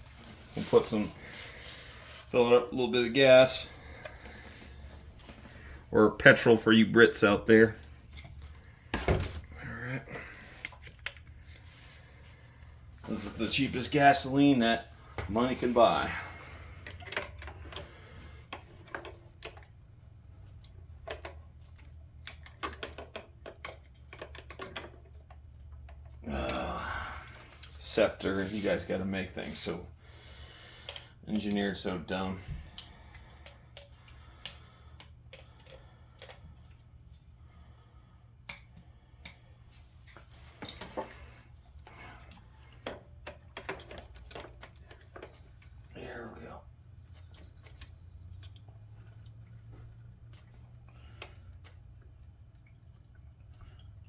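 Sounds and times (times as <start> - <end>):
low steady hum: 23.7 - 54.0.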